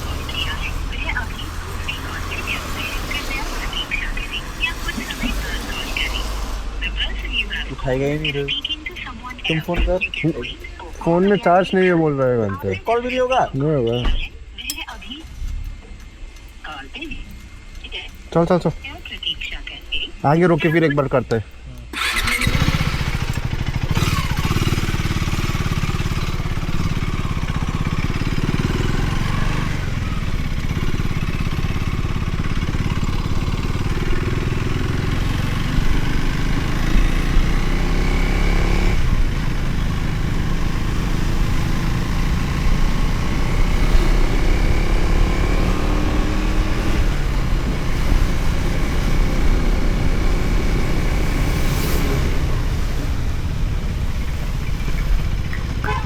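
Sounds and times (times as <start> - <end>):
motorcycle engine running: 0.0 - 14.4, 21.9 - 56.0.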